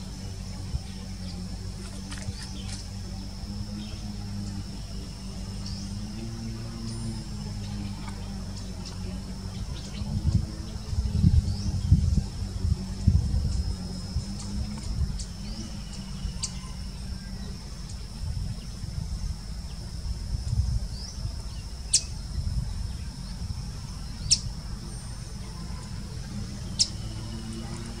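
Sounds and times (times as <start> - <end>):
low rumble: 0.0 - 28.0
bird chirps: 20.9 - 27.9.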